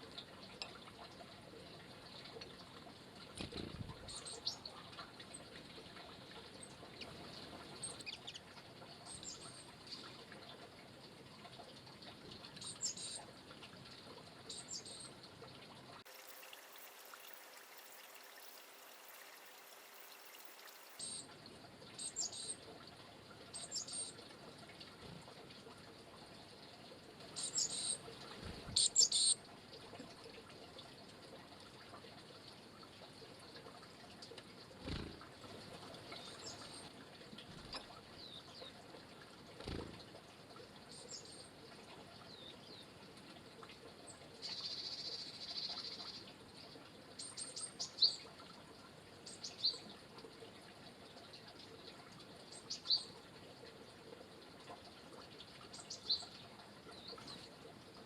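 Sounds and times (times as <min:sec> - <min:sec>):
faint steady hiss: 0:00.0 - 0:58.0
small bird calling: 0:28.8 - 0:29.4.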